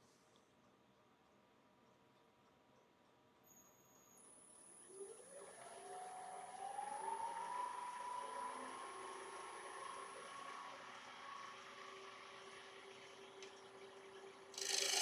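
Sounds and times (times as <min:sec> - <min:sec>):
lathe motor whine: 0:05.8 - 0:15.0.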